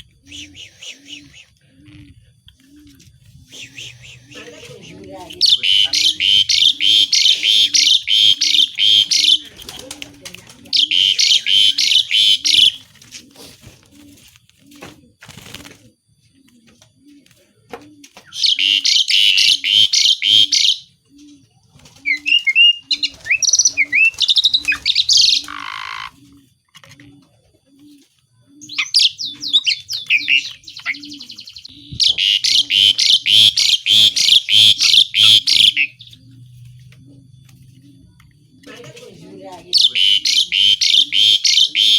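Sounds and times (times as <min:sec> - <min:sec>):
buzzy bird trill: 0:00.1 - 0:01.5, 0:03.5 - 0:10.0, 0:10.7 - 0:12.9, 0:18.3 - 0:21.0, 0:22.0 - 0:26.3, 0:28.5 - 0:38.6, 0:39.7 - 0:41.9
starling whistled notes: 0:00.2 - 0:01.5, 0:03.5 - 0:09.7, 0:10.8 - 0:12.8, 0:28.6 - 0:36.2, 0:39.8 - 0:41.9
starling harsh chattering: 0:03.5 - 0:12.8, 0:32.0 - 0:36.1, 0:38.8 - 0:41.9.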